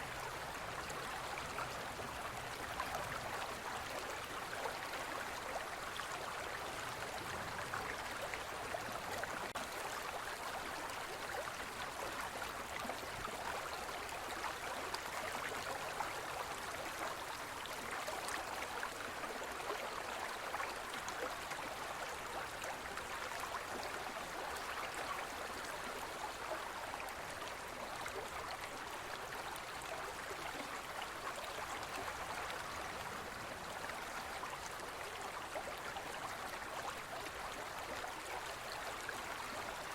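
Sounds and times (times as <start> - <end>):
stream burbling over stones: 0.0 - 39.9.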